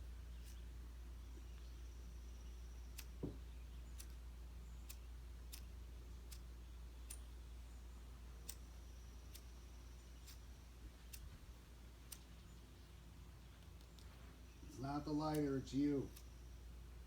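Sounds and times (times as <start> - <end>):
lighter clicking: 8.4 - 8.7.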